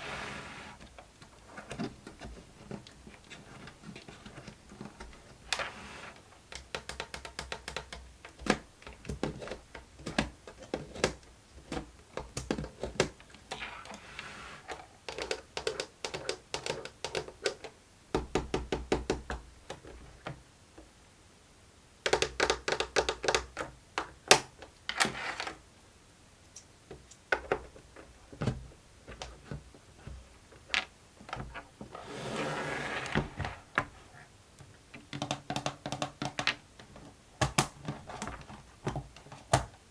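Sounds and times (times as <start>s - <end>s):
rustling or sliding: 0.0s - 6.3s, 13.6s - 14.9s, 31.5s - 34.3s
plastic toy clicking: 15.1s - 17.7s.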